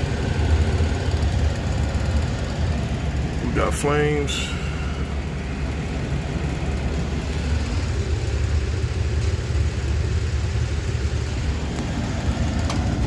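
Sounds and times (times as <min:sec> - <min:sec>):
gas furnace rumbling: 0:00.0 - 0:13.0.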